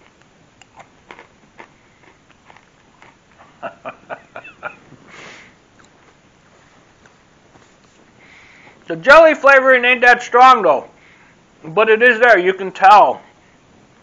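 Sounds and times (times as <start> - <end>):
person chewing crunchy pretzels: 0.0 - 4.7
breath through the nose: 5.1 - 5.6.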